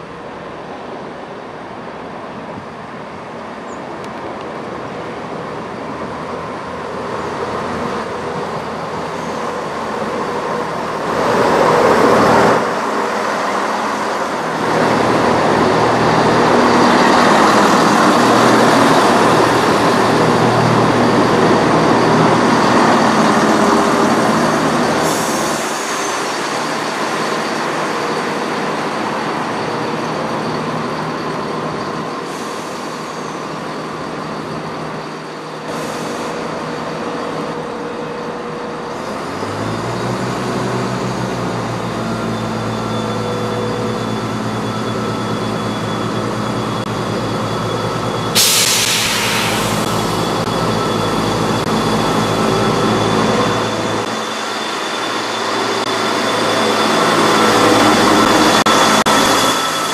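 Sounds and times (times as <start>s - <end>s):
diesel train engine tone: 0.0s - 59.9s
diesel train passing close: 0.0s - 59.9s
short hisses: 48.4s - 50.1s.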